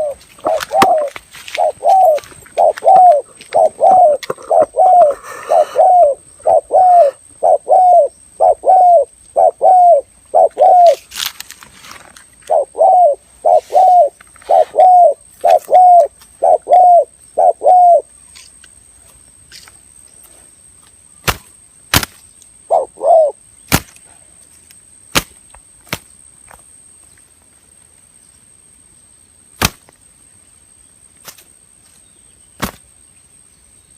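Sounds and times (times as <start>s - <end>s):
dove cooing: 0.0s - 11.0s, 12.4s - 18.1s, 22.7s - 23.4s.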